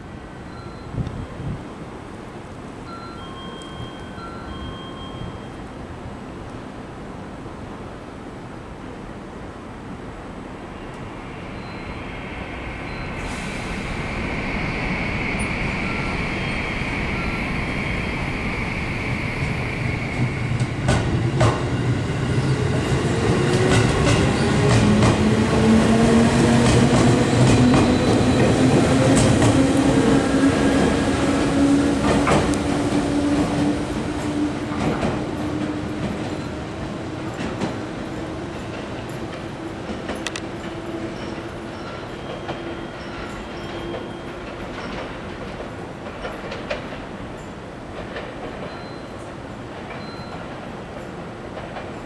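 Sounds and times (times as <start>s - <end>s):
electric train motors whining: 10.9s - 21.2s
wheels clicking over rail joints: 38.5s - 49.0s.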